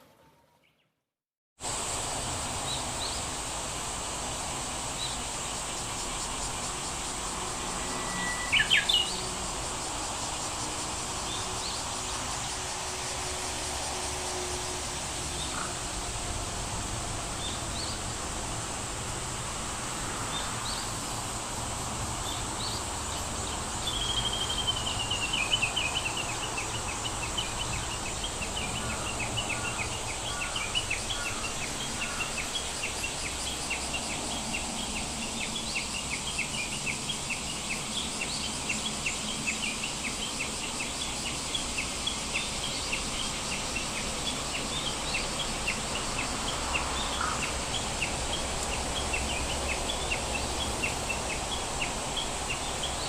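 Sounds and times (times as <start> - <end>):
steady high hiss: 1.6 - 53.0
birds chirping and trilling: 7.6 - 9.3.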